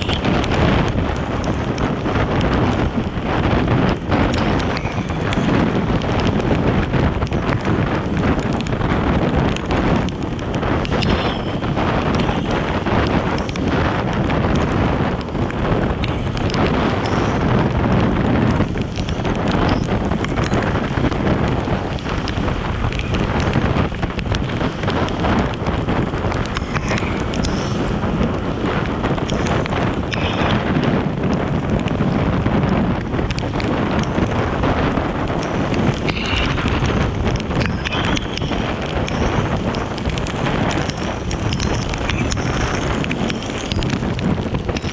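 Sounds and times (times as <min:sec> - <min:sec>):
vehicle and road noise: 0:00.0 - 0:44.9
wind buffeting microphone: 0:00.0 - 0:44.9
small ticks: 0:18.5 - 0:32.1, 0:33.0 - 0:44.9.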